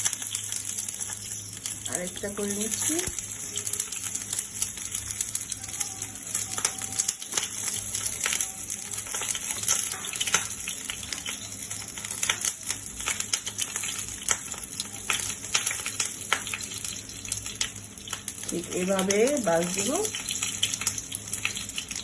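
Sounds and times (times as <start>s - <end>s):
crackles and pops of frying: 0.0s - 22.0s
oil sizzling in a pan: 0.0s - 22.0s.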